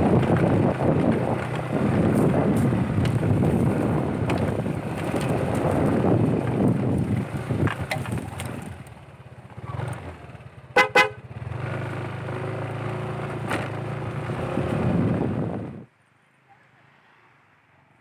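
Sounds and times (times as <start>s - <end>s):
motorcycle engine running: 0.0s - 15.9s
short horn beeps: 10.8s - 11.2s.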